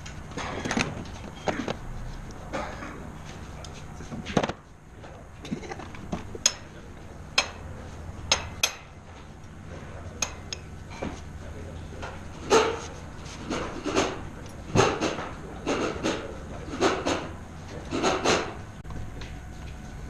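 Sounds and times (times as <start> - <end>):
faint voices: 9.1 - 19.9.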